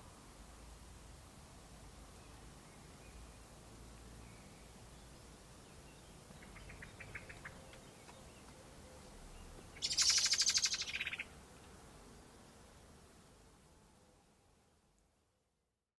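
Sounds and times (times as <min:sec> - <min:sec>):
bird rattling trill: 0:09.8 - 0:11.2.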